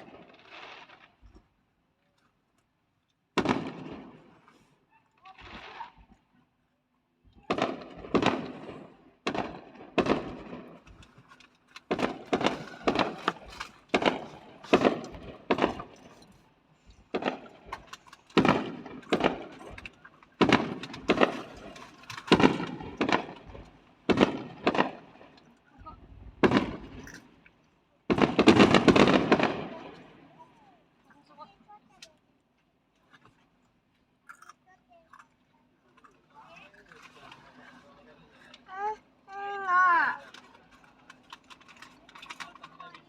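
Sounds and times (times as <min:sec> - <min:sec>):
fireworks bursting: 0:00.0 - 0:01.4, 0:03.4 - 0:04.5, 0:05.2 - 0:06.2, 0:07.3 - 0:11.1, 0:11.8 - 0:27.4, 0:28.1 - 0:30.5.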